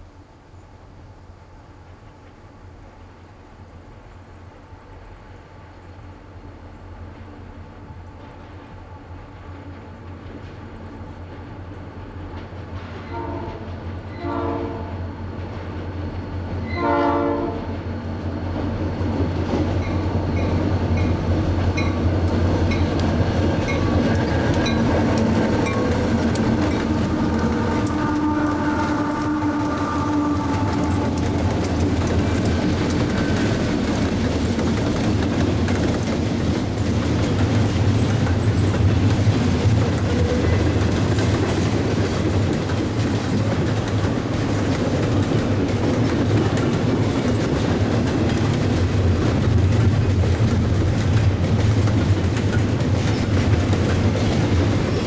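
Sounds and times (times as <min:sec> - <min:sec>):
diesel locomotives running: 0:01.5 - 0:55.0
train horn blasts: 0:13.0 - 0:15.2, 0:16.6 - 0:17.8, 0:25.6 - 0:31.6
wheels clacking over rail joints: 0:18.5 - 0:55.0.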